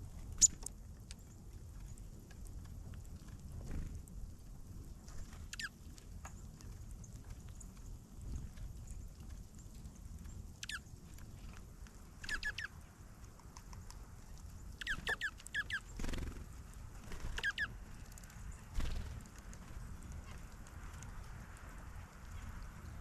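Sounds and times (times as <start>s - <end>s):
small birds chirping: 0.3s - 2.3s, 5.4s - 20.8s.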